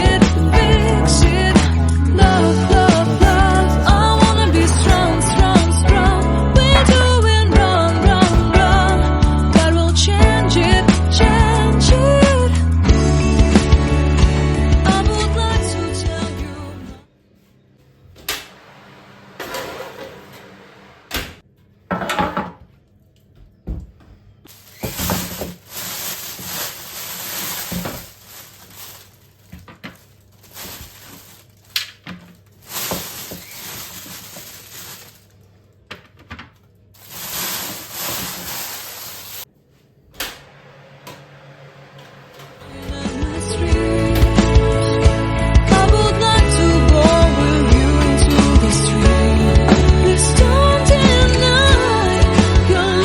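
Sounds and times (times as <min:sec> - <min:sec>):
rustling noise: 0:00.0 - 0:07.3, 0:24.5 - 0:35.4, 0:37.0 - 0:40.0.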